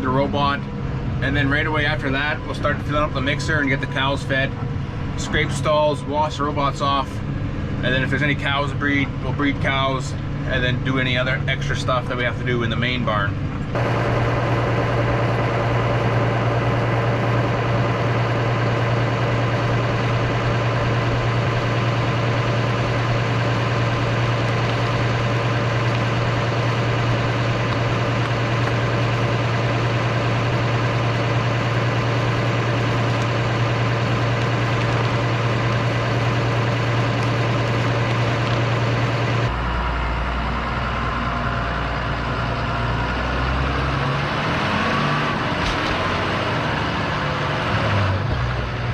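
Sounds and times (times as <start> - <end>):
heavy farm machine engine running: 0.0 - 48.9.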